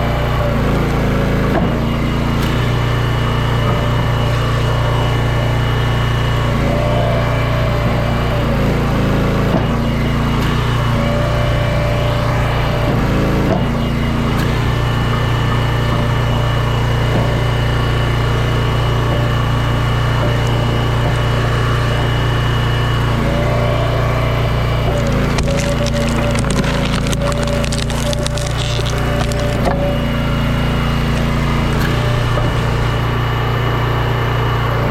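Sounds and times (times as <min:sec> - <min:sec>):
small gas engine running: 0:00.0 - 0:34.9
wood cracking and splintering: 0:24.7 - 0:33.0.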